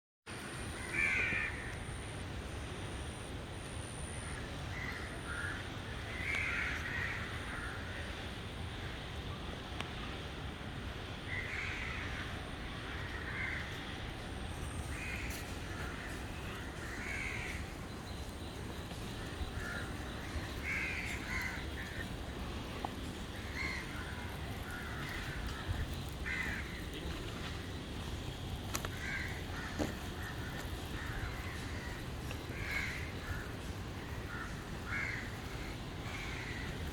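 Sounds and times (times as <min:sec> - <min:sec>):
crows cawing: 0:00.8 - 0:01.8, 0:04.7 - 0:08.1, 0:11.3 - 0:13.9, 0:14.9 - 0:17.8, 0:19.2 - 0:22.5, 0:23.3 - 0:27.6, 0:28.9 - 0:36.9.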